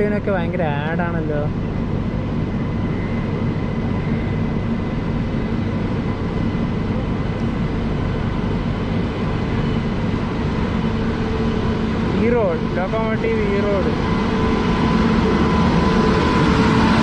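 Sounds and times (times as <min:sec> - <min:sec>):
electrical hum: 0:00.0 - 0:17.0
passing train rumble: 0:00.0 - 0:17.0.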